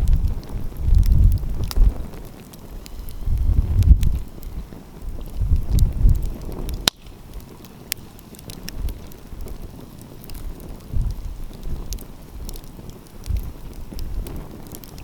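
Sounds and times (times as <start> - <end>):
wind buffeting microphone: 0.0 - 15.0
wood fire crackling and popping: 0.0 - 15.0.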